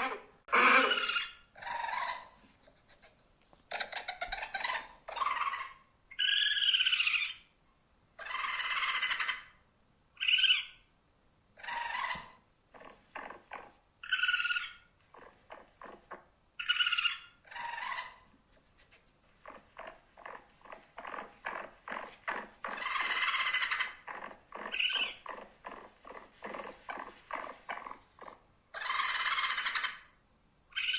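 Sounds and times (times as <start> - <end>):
pet rodent squeaking: 0.0 - 7.4, 8.2 - 9.5, 10.2 - 10.8, 11.6 - 30.1.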